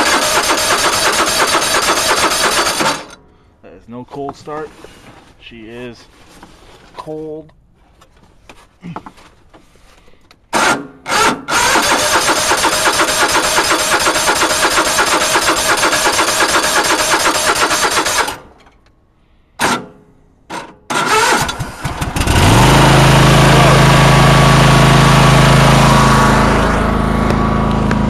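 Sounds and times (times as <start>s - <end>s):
electric starter cranking engine: 0.0s - 3.2s, 10.6s - 18.6s, 20.9s - 28.0s
engine running steadily: 21.6s - 28.0s.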